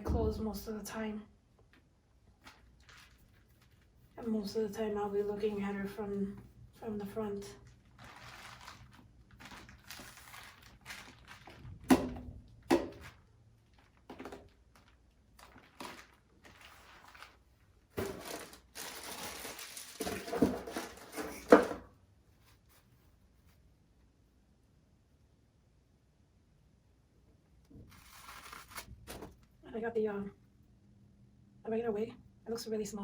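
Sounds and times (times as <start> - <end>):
packaging crinkling and rustling: 2.4 - 4.2, 7.6 - 21.7, 27.9 - 29.5.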